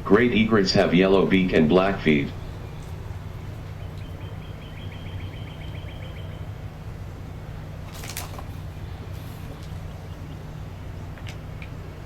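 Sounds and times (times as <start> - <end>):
steady low rumble: 0.0 - 12.0
small bird trilling: 2.4 - 6.6
sharp rustle: 7.8 - 10.0.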